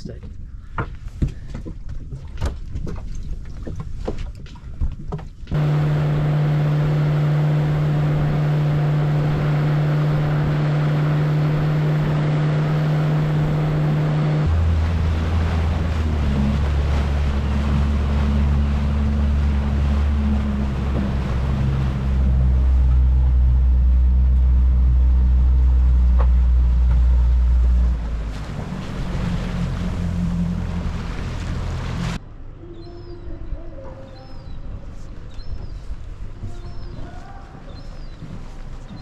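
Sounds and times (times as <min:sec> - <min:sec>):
wind: 0:00.0 - 0:39.0
water noise: 0:02.0 - 0:32.2
boat engine running: 0:05.4 - 0:32.2.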